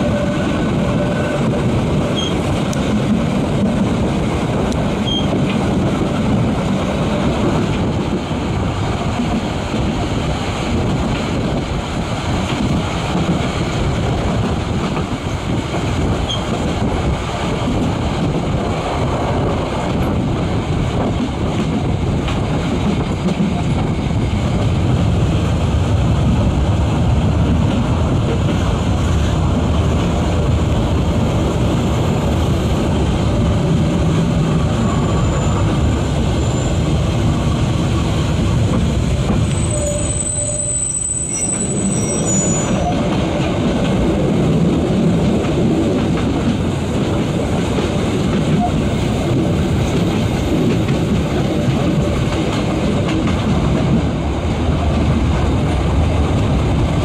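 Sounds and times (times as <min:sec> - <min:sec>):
rumble of train wheels on rail: 0:00.0 - 0:57.0
wind: 0:00.0 - 0:57.0
high wheel squeals: 0:05.0 - 0:05.3, 0:39.4 - 0:43.1.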